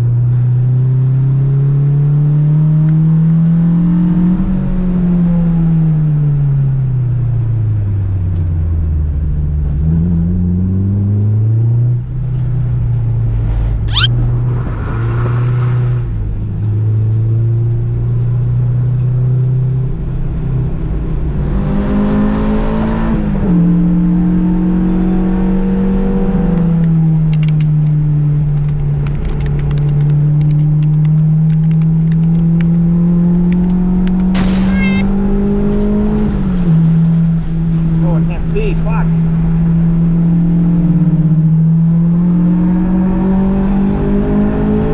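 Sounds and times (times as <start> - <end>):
sharp rising whistle: 13.9 - 14.1, 34.4 - 35.2
car engine running: 34.1 - 41.3.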